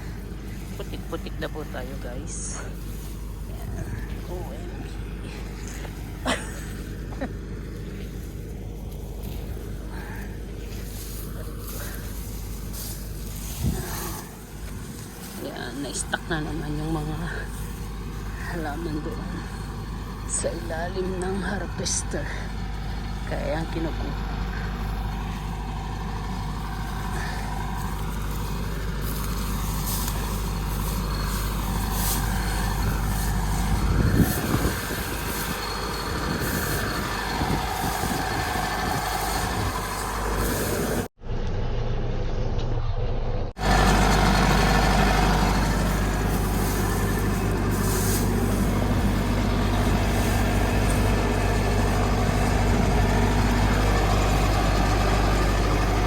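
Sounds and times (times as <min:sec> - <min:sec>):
combine harvester engine and threshing: 0:00.0 - 0:42.6, 0:43.5 - 0:56.0.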